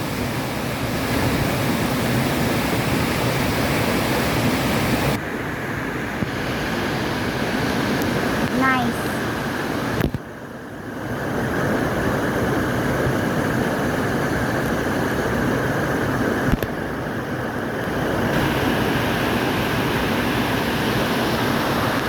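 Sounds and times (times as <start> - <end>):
waterfall rushing: 0.0 - 5.2, 6.3 - 10.0, 18.2 - 22.0.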